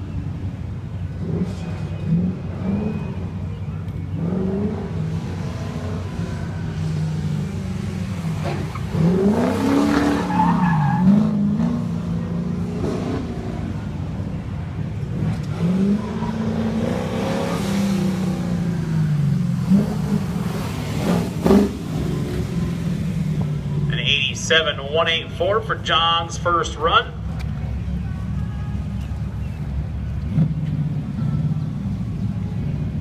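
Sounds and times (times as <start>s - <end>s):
car engine revving: 1.0s - 27.9s
tires squealing: 1.2s - 14.4s, 15.1s - 24.2s.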